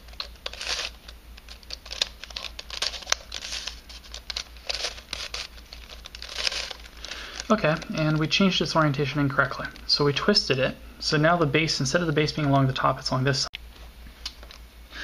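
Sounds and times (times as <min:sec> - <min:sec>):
puzzle pieces scraping and clicking: 0:00.0 - 0:08.3.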